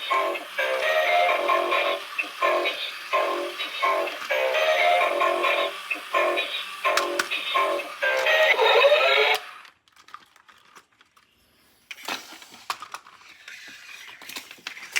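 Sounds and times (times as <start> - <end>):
toy electronic tones rising: 0.0 - 9.6.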